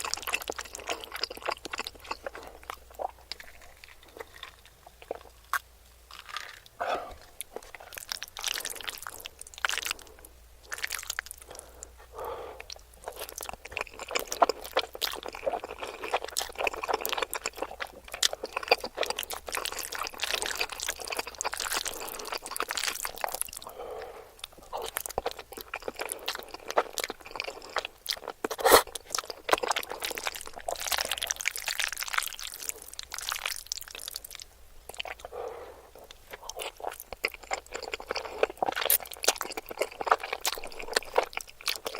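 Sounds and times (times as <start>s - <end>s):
chewing food crunches: 0.0s - 23.8s, 24.4s - 41.9s
wet mouth sounds: 0.0s - 34.3s.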